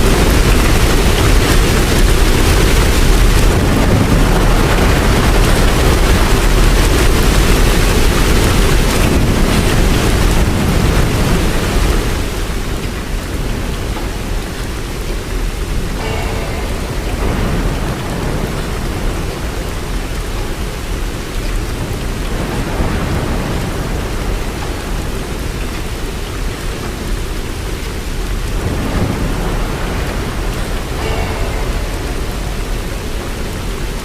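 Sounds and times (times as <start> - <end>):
heavy rain: 0.0 - 34.0.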